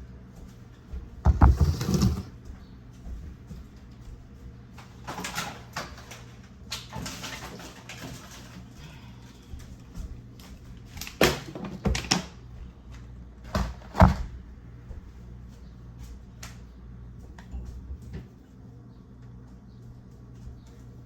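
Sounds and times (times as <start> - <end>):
kitchen knocks and clunks: 0.9 - 2.4, 13.4 - 15.0.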